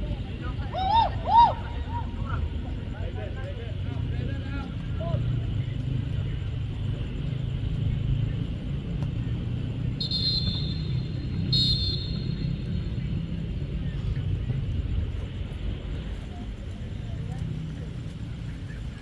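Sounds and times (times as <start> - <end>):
low rumble of field noise: 0.0 - 19.0
referee's whistle blasts: 10.0 - 12.7.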